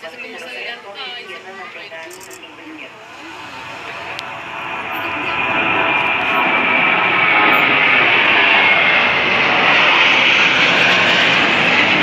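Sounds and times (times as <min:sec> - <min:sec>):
jet engines roaring with whine: 0:00.0 - 0:12.0.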